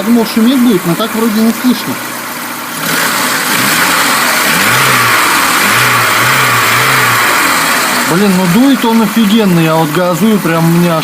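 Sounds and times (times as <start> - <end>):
car engine revving: 0.8 - 10.8.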